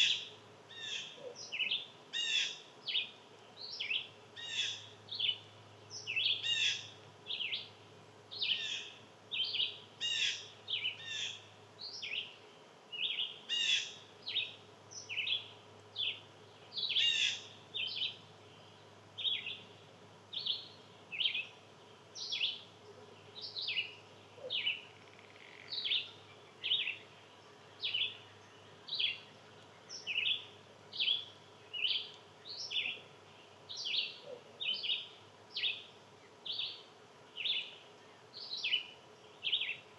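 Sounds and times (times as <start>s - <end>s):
songbird sharp high calls: 16.8s - 18.2s.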